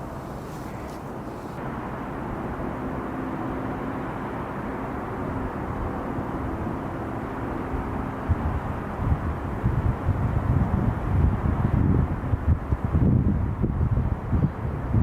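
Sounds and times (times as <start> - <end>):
jet engine rumble: 0.0 - 15.0
wind buffeting microphone: 3.7 - 15.0.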